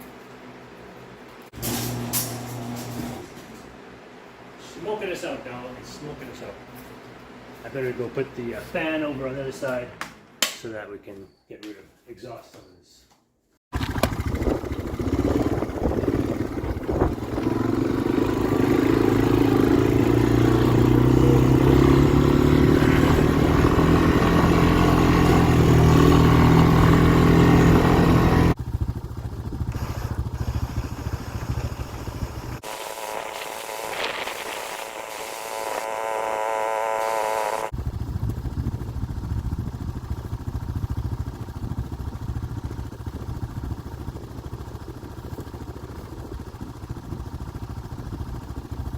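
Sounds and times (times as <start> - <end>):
snowmobile engine running: 13.8 - 48.8.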